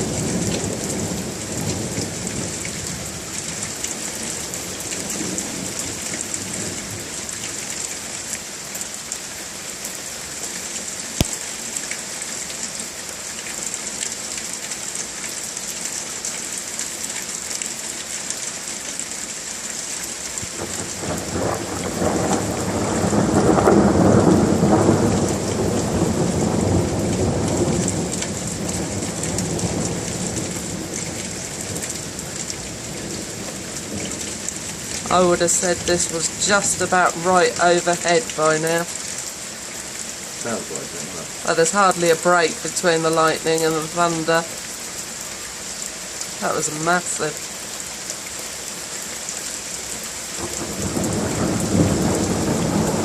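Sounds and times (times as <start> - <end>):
steady rain falling: 0.0 - 53.0
thunder rumbling: 20.4 - 38.9, 50.4 - 53.0.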